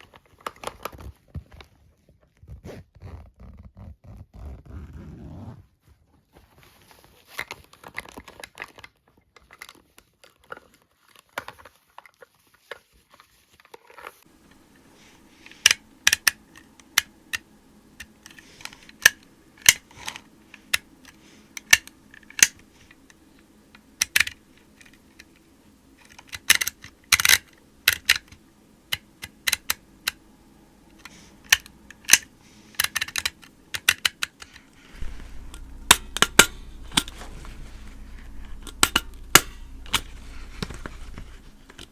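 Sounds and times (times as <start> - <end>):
faint steady hum: 14.0 - 41.9.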